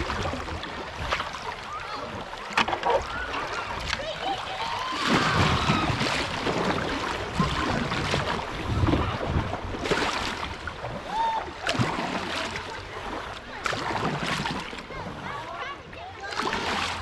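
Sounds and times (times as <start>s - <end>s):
paddle splashing in water: 0.0s - 17.0s
wind buffeting microphone: 4.9s - 12.2s.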